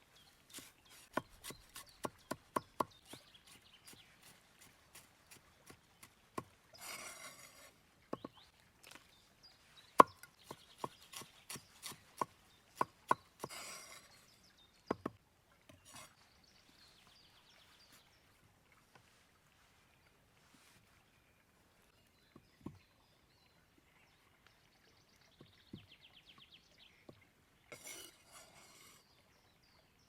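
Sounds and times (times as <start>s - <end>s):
knife chopping on wooden board: 10.0s - 13.7s.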